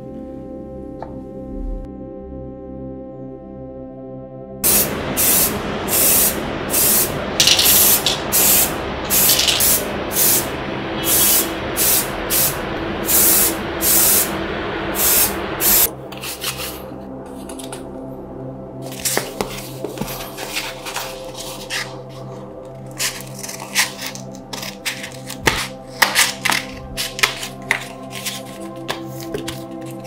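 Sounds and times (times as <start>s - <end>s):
air spray gun hissing bursts: 4.6s - 15.9s
steady rushing noise: 4.6s - 15.9s.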